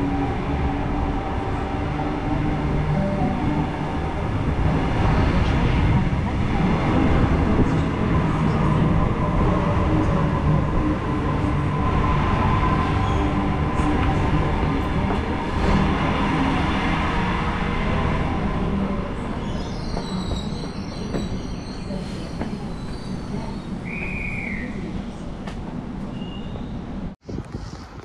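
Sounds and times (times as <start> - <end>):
electric train rumbling: 0.0 - 28.0
high squeal: 11.5 - 15.9, 19.2 - 24.8, 26.1 - 26.8.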